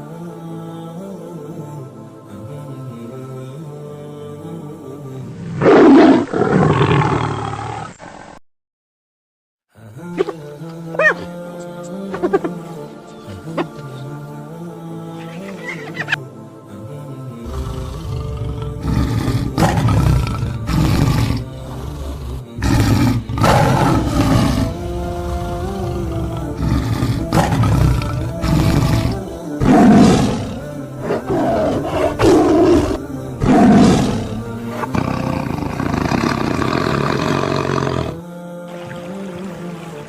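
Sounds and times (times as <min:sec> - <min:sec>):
background music: 0:00.0 - 0:07.0, 0:09.8 - 0:40.0
large animal calling: 0:10.2 - 0:11.3, 0:15.2 - 0:16.2, 0:17.5 - 0:38.2.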